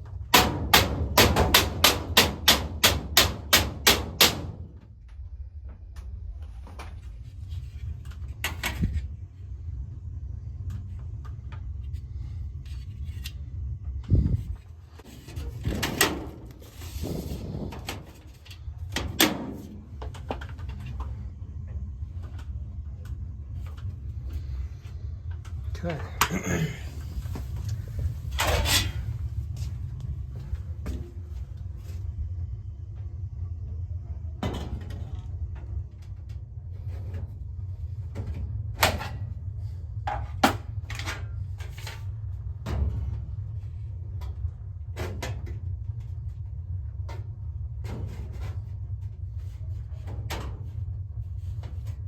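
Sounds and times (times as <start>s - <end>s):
steady low hum: 0.0s - 52.0s
steady low rumble: 0.0s - 52.0s
loud sharp knocks: 0.4s - 4.6s.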